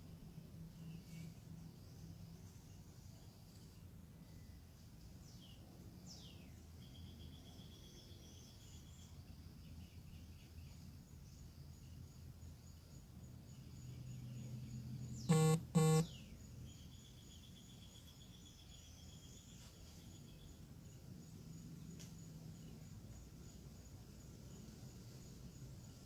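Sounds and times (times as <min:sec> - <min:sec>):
loud horn-like beeps: 0:15.3 - 0:16.1.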